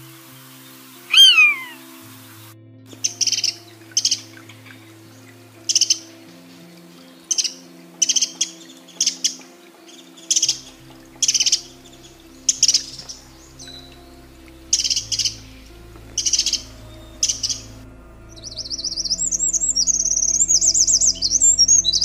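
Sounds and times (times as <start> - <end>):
soft background music: 0.0 - 22.0
songbird chirping: 0.0 - 22.0
buzzard mewing call: 1.1 - 1.8.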